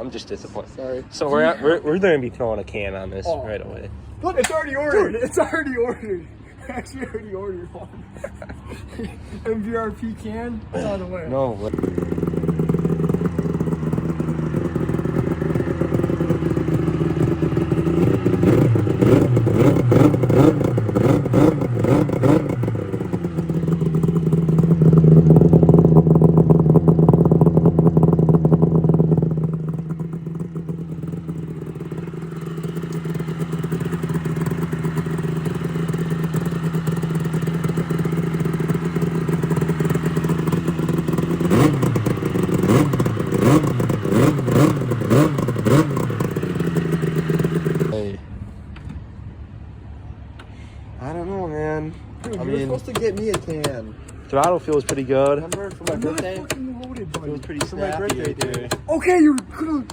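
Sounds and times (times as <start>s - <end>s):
snowmobile engine revving: 11.4s - 48.2s.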